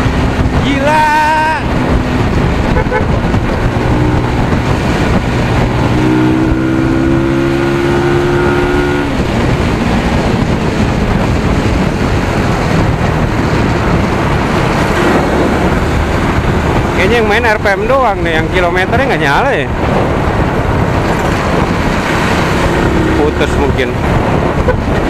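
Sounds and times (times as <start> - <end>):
wind rushing past microphone: 0.0 - 25.0
motorcycle engine revving: 1.4 - 25.0.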